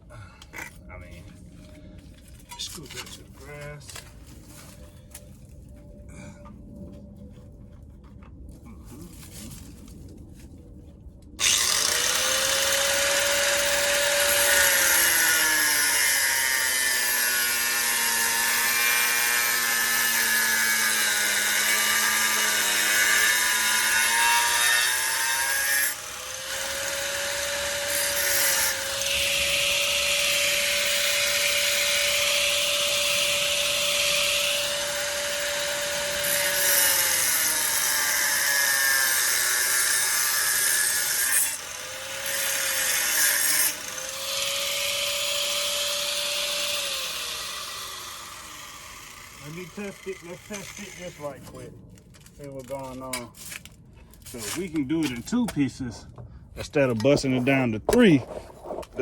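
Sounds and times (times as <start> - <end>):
grinder cutting sheet steel: 11.4 - 51.4.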